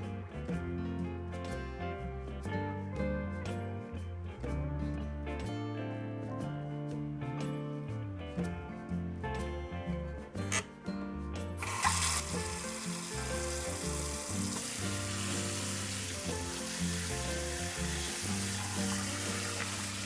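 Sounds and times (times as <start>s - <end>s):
background music: 0.0s - 20.0s
shrimp sizzling: 11.6s - 20.0s.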